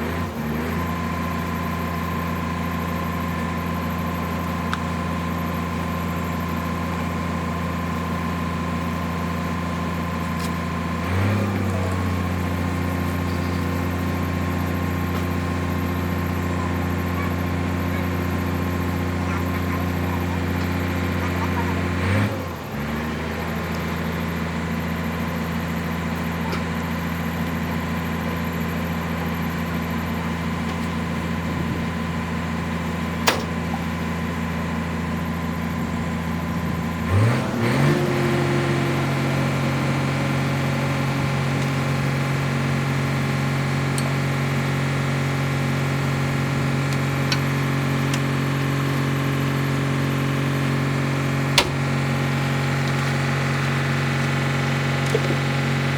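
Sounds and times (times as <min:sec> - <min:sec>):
diesel engine idling: 0:00.0 - 0:55.9
sharp click: 0:33.2 - 0:33.5.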